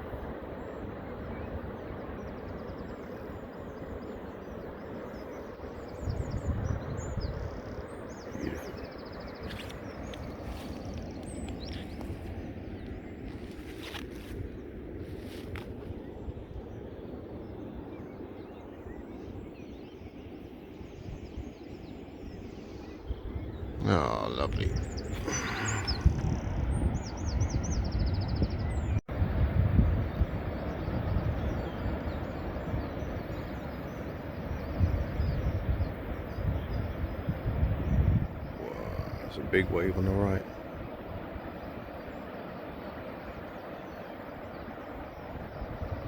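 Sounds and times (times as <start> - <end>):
low rumble of the sea: 0.0 - 46.0
wind: 0.0 - 46.0
small birds chirping: 0.6 - 29.0, 30.1 - 46.0
sea surf rushing: 38.4 - 46.0.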